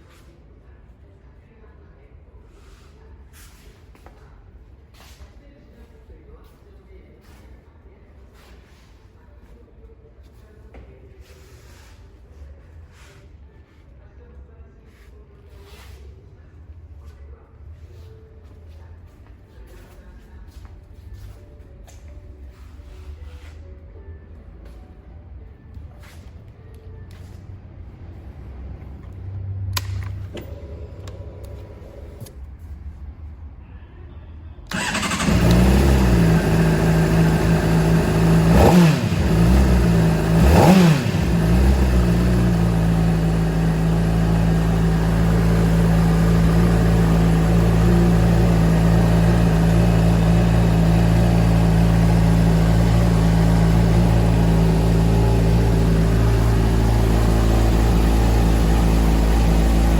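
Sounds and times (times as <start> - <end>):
motorcycle engine revving and idling: 34.7 - 59.9
starter motor whir: 34.7 - 59.9.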